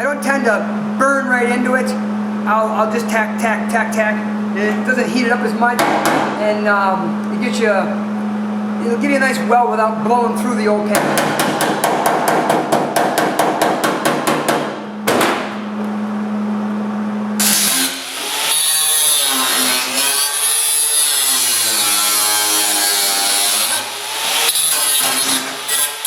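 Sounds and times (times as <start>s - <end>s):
steady hum: 0.0s - 25.7s
angle grinder cutting metal: 17.4s - 26.0s.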